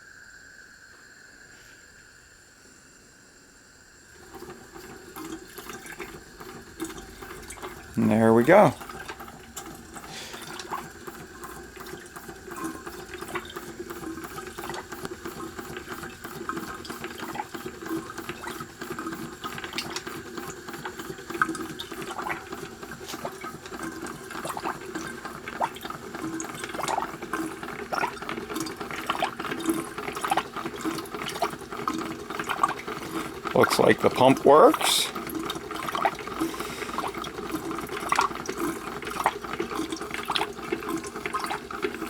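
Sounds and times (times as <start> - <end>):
water sloshing and gurgling: 4.2 - 42.0.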